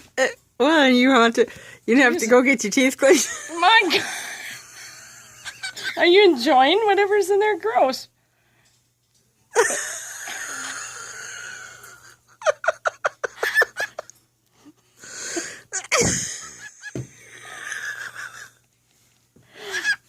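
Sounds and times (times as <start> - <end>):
wheezy laughter: 9.5 - 14.2, 15.4 - 18.6, 19.6 - 20.0.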